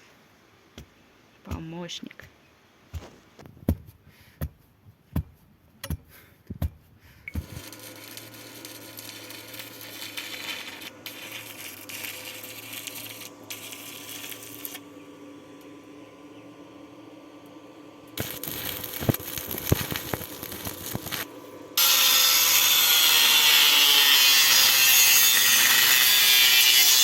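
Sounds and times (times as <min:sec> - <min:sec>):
small motor-driven tool humming: 0:07.3 - 0:15.3, 0:18.1 - 0:27.0.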